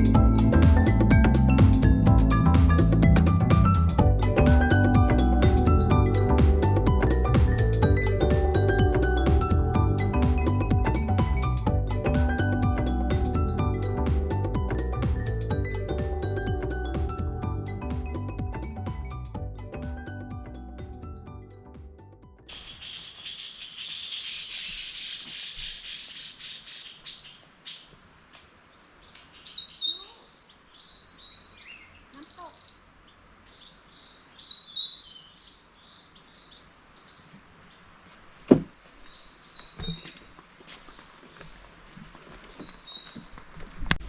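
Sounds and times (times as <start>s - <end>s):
birds singing: 22.5s - 28.1s, 28.7s - 38.0s, 38.6s - 41.4s, 42.5s - 43.4s.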